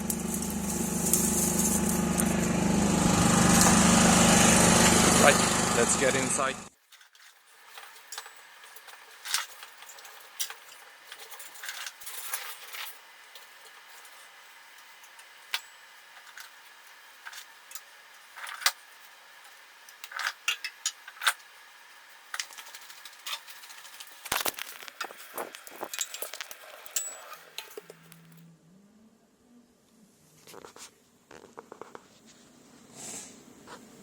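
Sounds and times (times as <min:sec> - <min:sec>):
twigs snapping and knocking: 0:00.0 - 0:02.5, 0:24.1 - 0:26.8.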